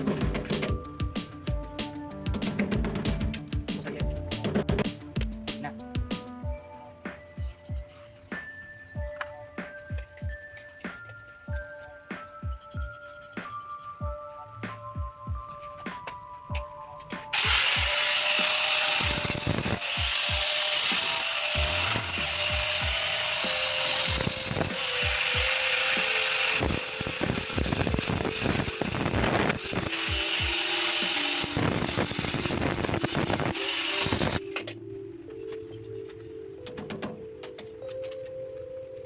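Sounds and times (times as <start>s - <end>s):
background music: 0.0s - 39.0s
power tool running: 17.3s - 34.5s.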